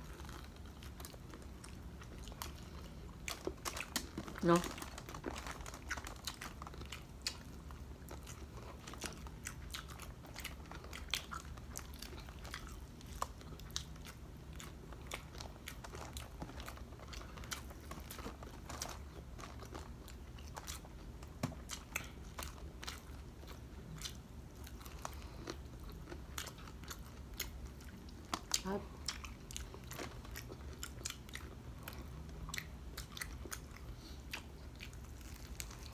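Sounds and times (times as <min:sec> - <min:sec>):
crunchy chewing: 0:00.0 - 0:35.9
low steady hum: 0:00.0 - 0:35.9.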